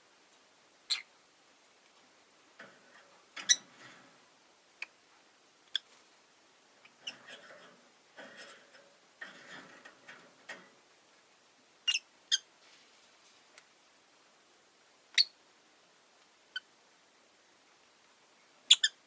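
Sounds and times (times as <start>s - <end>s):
lovebirds chattering: 0.9s - 1.1s.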